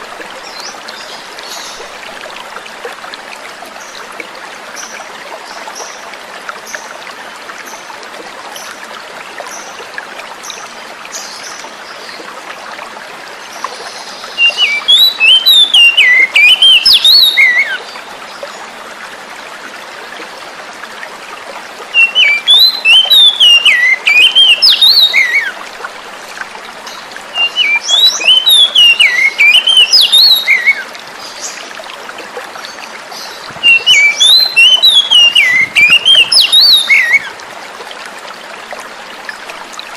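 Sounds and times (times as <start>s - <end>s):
flowing water: 0.0s - 39.9s
songbird singing: 13.5s - 18.5s, 21.9s - 25.6s, 26.8s - 31.7s, 32.6s - 37.4s.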